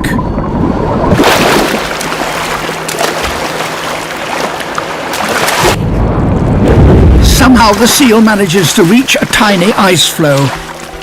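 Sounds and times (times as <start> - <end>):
seawater churning and splashing: 0.7 - 5.8, 6.6 - 11.0
deep low rumble: 5.5 - 8.6.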